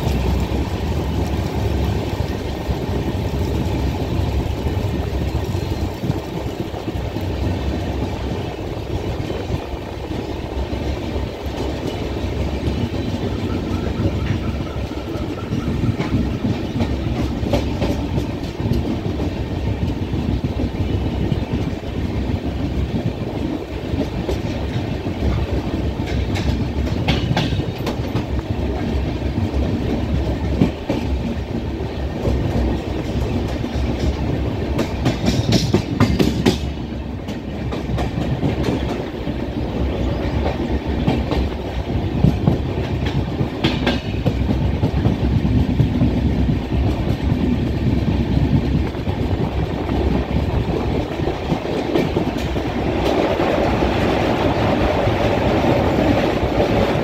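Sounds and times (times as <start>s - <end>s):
train wheels rumbling on rails: 0.0s - 57.0s
clickety-clack clattering: 9.2s - 57.0s.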